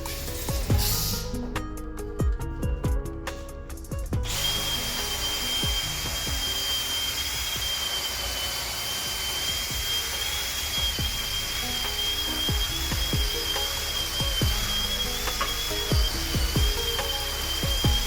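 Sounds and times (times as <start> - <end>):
background music with a beat: 0.0 - 18.0
power tool motor whining: 4.2 - 18.0.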